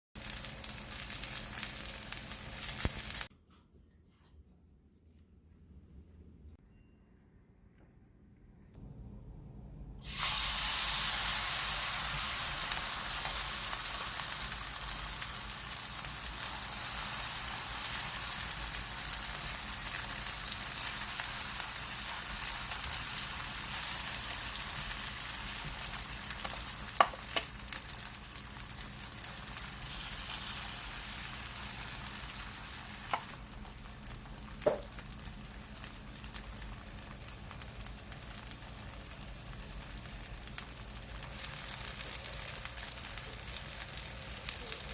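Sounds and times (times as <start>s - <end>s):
food sizzling in a pan: 0.2s - 3.3s, 10.0s - 44.9s.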